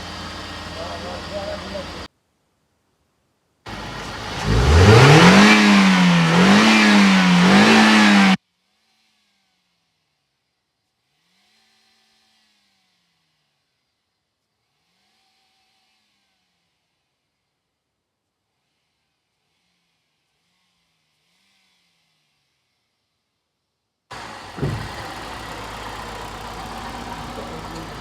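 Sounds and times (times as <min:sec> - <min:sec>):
car engine revving: 0:00.0 - 0:02.1, 0:03.7 - 0:08.4, 0:24.1 - 0:28.0.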